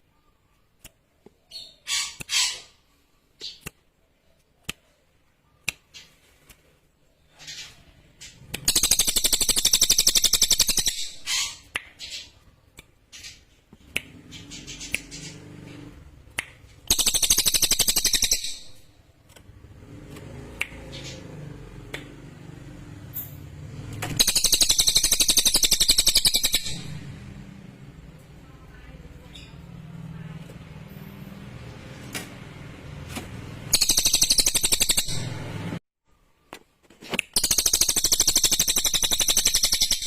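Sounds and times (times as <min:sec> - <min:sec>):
songbird trilling: 0:16.9 - 0:18.8, 0:24.2 - 0:27.0.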